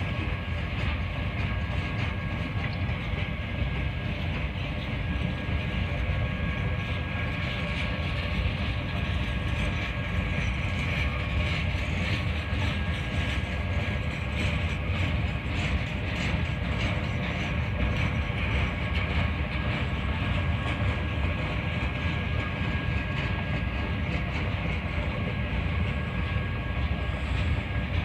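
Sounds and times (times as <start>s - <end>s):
steel wheels rumbling on rail: 0.0s - 28.0s
wheels clicking over rail joints: 0.0s - 28.0s.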